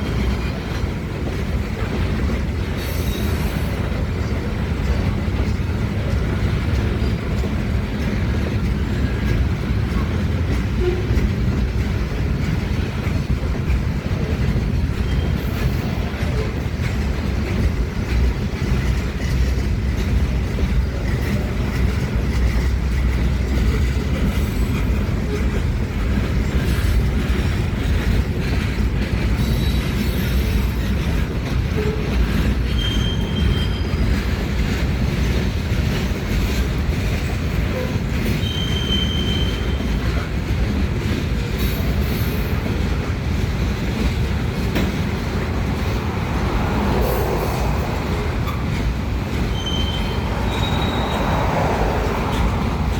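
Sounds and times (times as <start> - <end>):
freight train wheels rumbling: 0.0 - 52.9
high wheel squeals: 14.9 - 16.2, 31.7 - 34.4, 37.7 - 40.1, 46.7 - 52.9.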